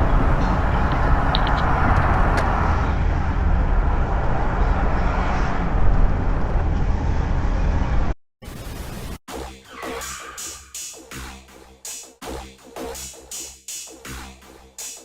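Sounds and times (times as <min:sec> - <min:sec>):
car road and engine noise: 0:00.0 - 0:08.2.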